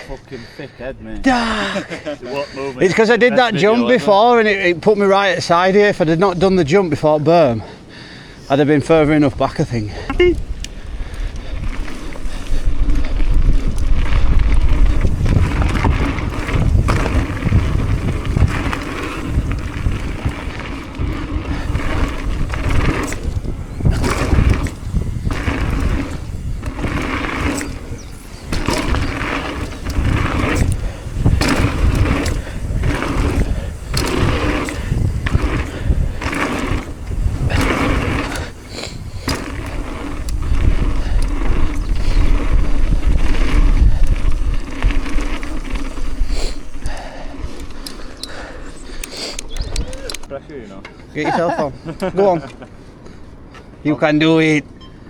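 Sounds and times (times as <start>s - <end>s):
tyres rolling on dirt and stones: 1.1s - 54.1s
wind buffeting microphone: 7.7s - 50.4s
bike rattling over bumps: 7.7s - 52.4s.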